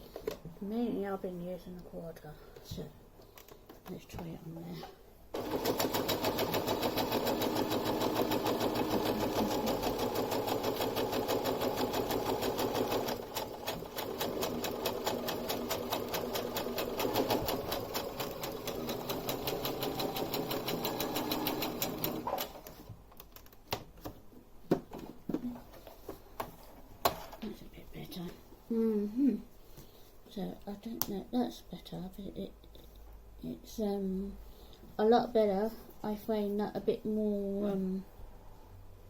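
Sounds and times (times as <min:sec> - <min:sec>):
sewing machine clattering: 0:05.4 - 0:22.6.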